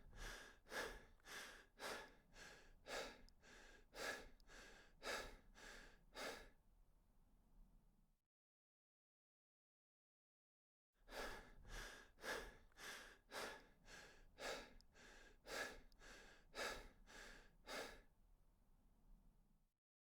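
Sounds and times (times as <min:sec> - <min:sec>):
person breathing hard: 0:00.0 - 0:06.6, 0:11.1 - 0:18.1.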